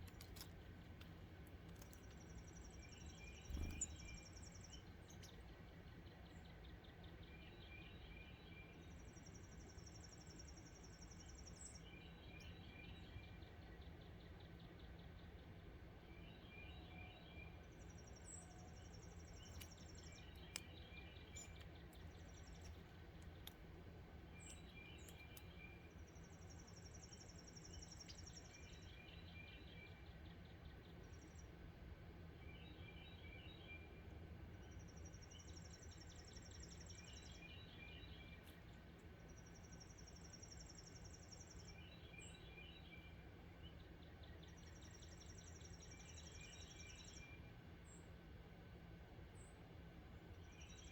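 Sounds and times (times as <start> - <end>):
low background rumble: 0.0 - 8.0
lower bird chirping notes: 1.8 - 31.7, 32.3 - 48.2.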